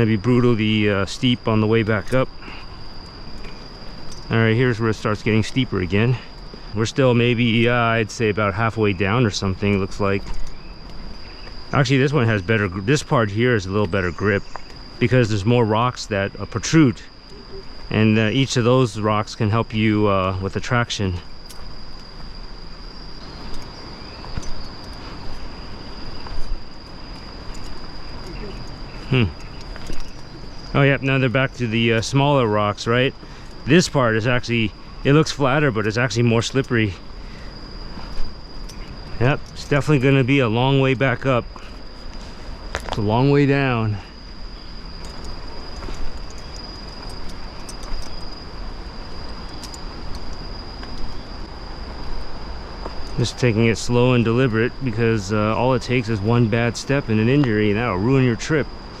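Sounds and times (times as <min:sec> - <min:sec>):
constant hiss: 0:00.0 - 0:59.0
insects droning: 0:00.0 - 0:59.0
footsteps on rocky steps: 0:45.0 - 0:48.4.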